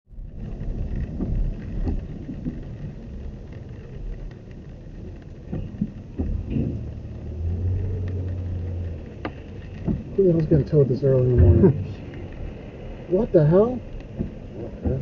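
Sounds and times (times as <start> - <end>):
car engine rumble: 0.1 - 15.0
soft knocks: 14.1 - 15.0.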